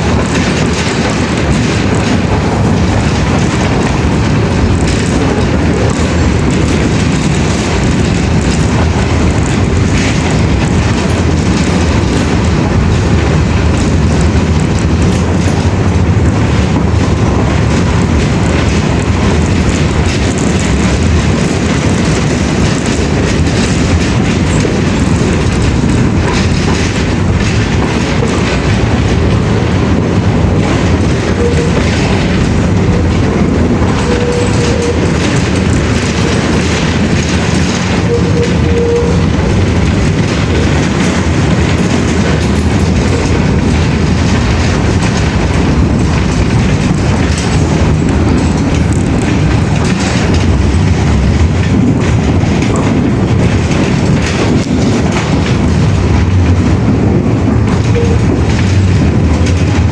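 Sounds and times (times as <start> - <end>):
loud low rumbling: 0.0 - 59.9.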